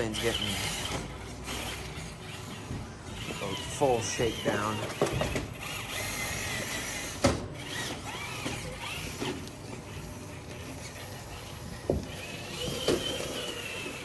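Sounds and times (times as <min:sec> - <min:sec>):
toy car electric motor whining: 0:00.0 - 0:14.0.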